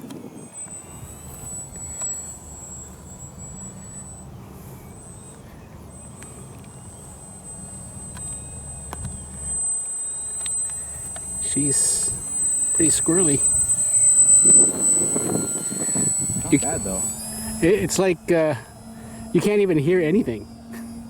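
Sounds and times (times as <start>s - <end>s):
distant model plane motor whine: 0.0s - 21.0s
wind buffeting microphone: 10.9s - 18.4s.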